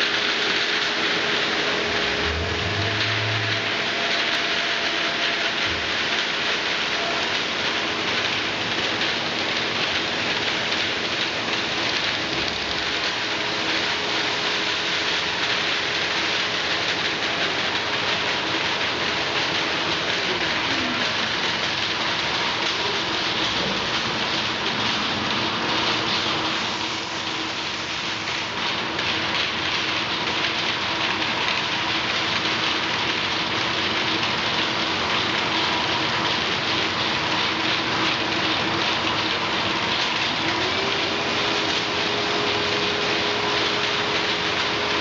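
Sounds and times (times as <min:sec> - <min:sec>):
machine drives humming: 0:00.0 - 0:16.6, 0:34.0 - 0:45.0
tone sliding down in pitch: 0:01.7 - 0:04.6.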